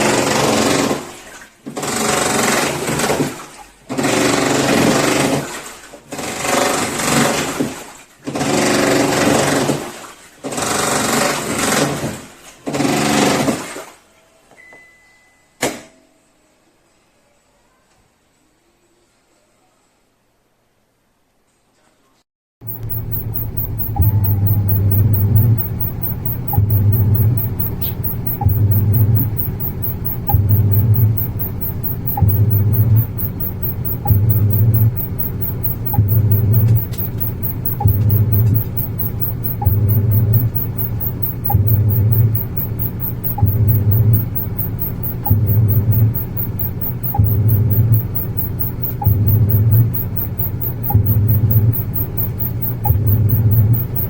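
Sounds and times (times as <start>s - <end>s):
washing machine motor humming: 22.6s - 54.0s.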